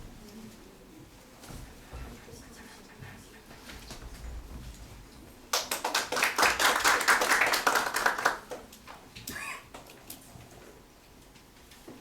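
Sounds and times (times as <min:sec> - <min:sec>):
audience applause: 0:05.6 - 0:08.6.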